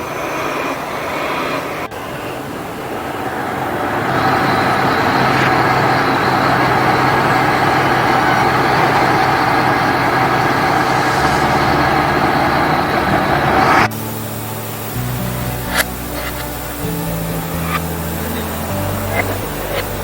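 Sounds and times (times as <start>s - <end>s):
large engine humming: 0.0s - 20.0s.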